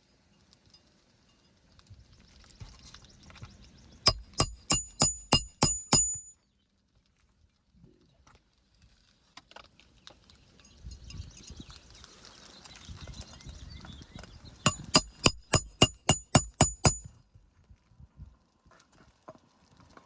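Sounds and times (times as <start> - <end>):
hammer striking roofing nails: 4.1 - 6.4, 14.7 - 17.2.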